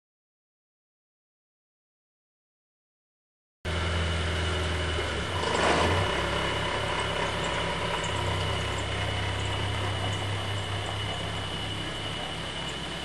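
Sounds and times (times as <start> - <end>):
car engine humming: 3.7 - 13.0
rush of noise: 3.7 - 13.0.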